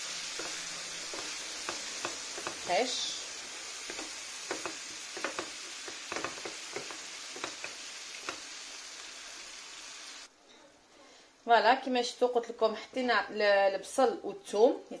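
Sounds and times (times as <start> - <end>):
wooden spoon scraping a pan: 0.0 - 8.7
vegetables sizzling in a frying pan: 0.0 - 10.3.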